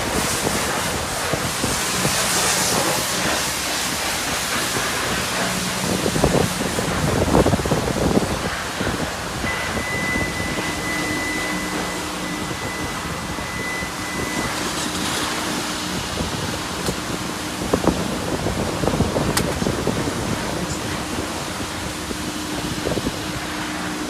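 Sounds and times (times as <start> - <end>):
wind buffeting microphone: 0.0 - 24.0
low hum: 0.2 - 19.0
thin high steady tone: 9.3 - 16.3.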